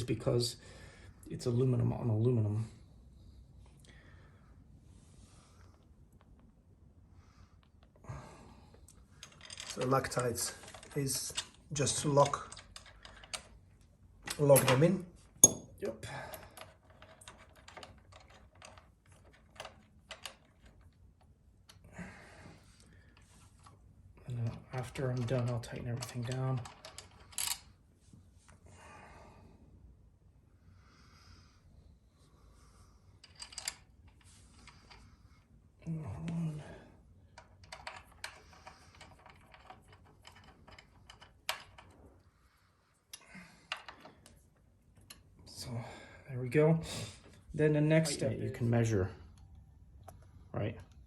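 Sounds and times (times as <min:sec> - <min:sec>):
metal bolts and tools clicking: 0:09.2 - 0:13.6, 0:14.2 - 0:20.9, 0:24.4 - 0:27.7, 0:33.2 - 0:35.0, 0:37.4 - 0:42.0.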